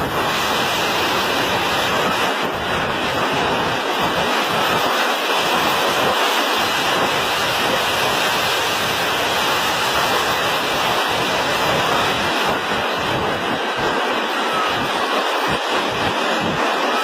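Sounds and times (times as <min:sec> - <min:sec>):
loud rushing noise: 0:00.0 - 0:17.0.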